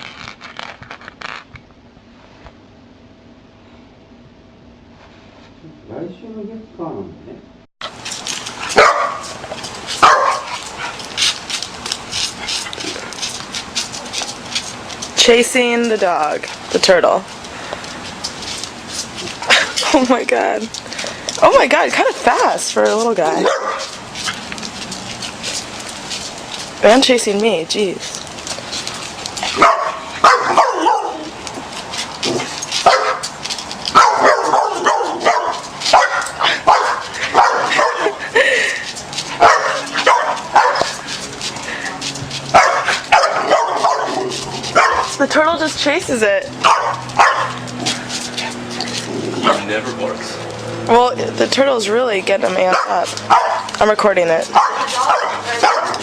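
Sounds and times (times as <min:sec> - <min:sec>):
dog barking and yipping: 0:07.8 - 0:15.3, 0:21.4 - 0:26.3, 0:28.5 - 0:38.4, 0:39.2 - 0:45.4, 0:46.2 - 0:49.8, 0:52.4 - 0:56.0
dog barking: 0:08.7 - 0:09.4, 0:10.0 - 0:10.6, 0:23.4 - 0:24.0, 0:29.6 - 0:31.3, 0:32.4 - 0:33.3, 0:33.9 - 0:38.2, 0:39.4 - 0:41.0, 0:42.5 - 0:45.2, 0:46.6 - 0:48.0, 0:52.7 - 0:53.7, 0:54.5 - 0:56.0.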